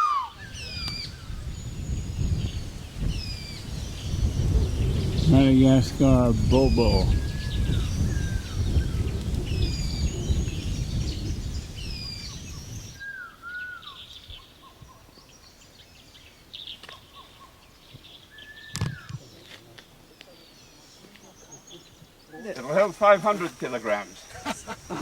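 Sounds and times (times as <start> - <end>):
birds whistling: 0.0 - 14.4
low rumble: 2.4 - 12.9.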